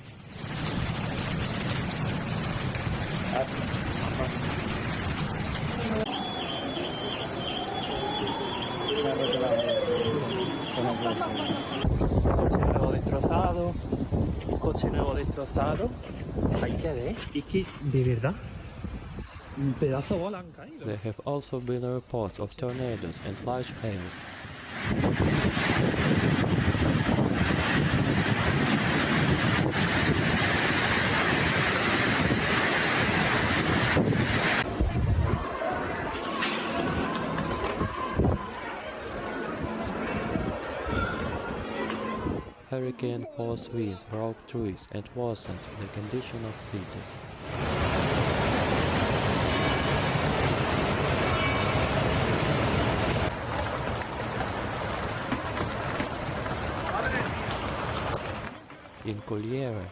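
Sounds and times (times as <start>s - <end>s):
storm rushing noise: 0.0s - 20.3s, 22.7s - 42.7s, 45.4s - 58.5s
wind buffeting microphone: 11.5s - 20.3s, 24.6s - 42.7s.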